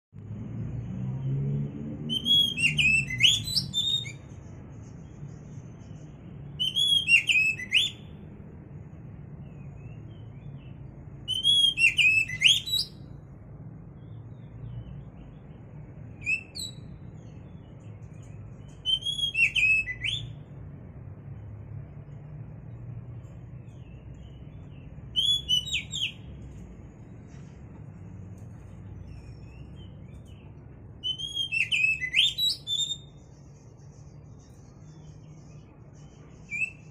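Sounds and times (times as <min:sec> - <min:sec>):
songbird singing: 0:00.2 - 0:36.9
steady low hum: 0:07.9 - 0:11.4, 0:12.9 - 0:18.9, 0:19.9 - 0:31.4.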